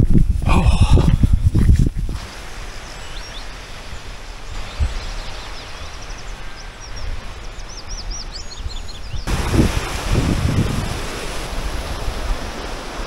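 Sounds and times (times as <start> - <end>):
wind rumble on microphone: 0.0 - 13.0
outdoor hiss: 1.9 - 8.4, 9.2 - 13.0
small birds chirping: 2.2 - 9.4.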